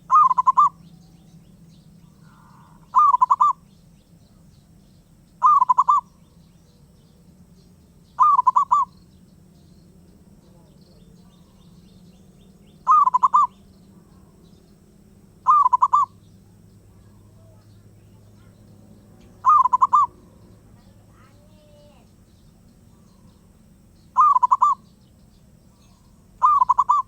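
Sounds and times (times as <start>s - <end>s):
dove cooing: 0.0s - 1.3s, 2.0s - 3.8s, 5.4s - 6.4s, 8.2s - 9.0s, 12.6s - 14.6s, 15.4s - 22.1s, 22.8s - 25.0s, 25.7s - 27.0s.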